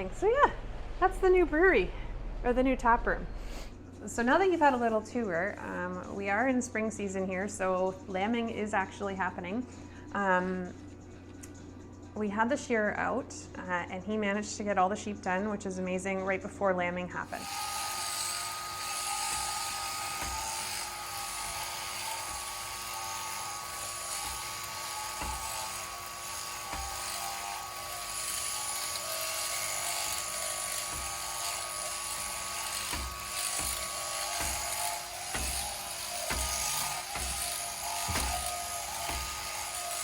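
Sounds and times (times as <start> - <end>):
electric shearing handpiece whining: 17.3 - 40.0
knocks and thumps: 32.8 - 39.5.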